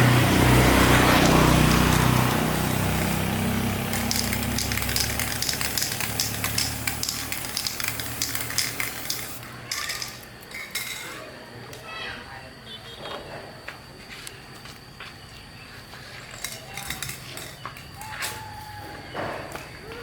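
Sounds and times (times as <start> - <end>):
motor humming: 0.0 - 10.2.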